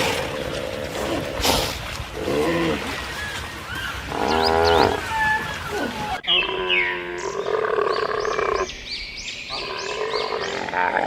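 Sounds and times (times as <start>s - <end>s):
drawn-out animal call: 2.8s - 8.6s.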